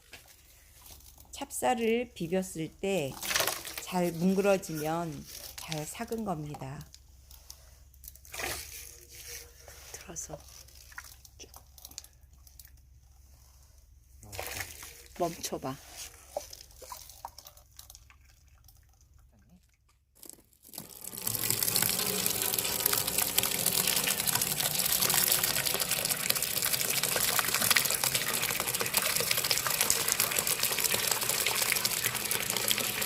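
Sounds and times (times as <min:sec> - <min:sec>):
liquid pouring through a strainer: 0:08.1 - 0:12.9, 0:16.3 - 0:19.4, 0:20.2 - 0:33.0.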